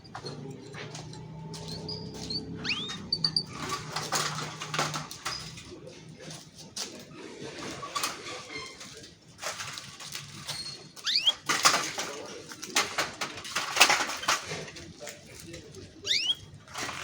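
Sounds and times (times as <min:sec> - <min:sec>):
canary singing: 0:01.1 - 0:03.9, 0:11.0 - 0:11.6, 0:16.0 - 0:16.6.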